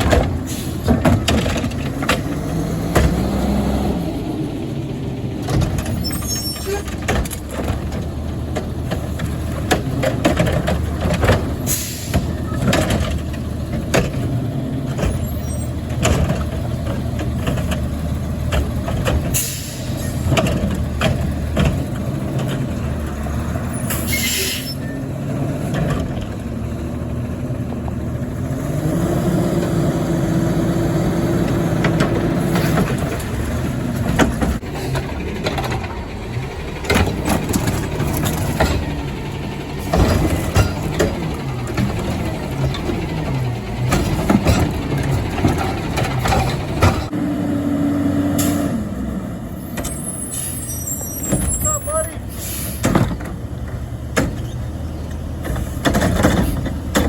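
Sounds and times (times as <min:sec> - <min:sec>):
diesel engine running: 0:00.0 - 0:57.0
metal knocks and clanks: 0:31.5 - 0:47.1
air-brake hisses: 0:52.3 - 0:52.9.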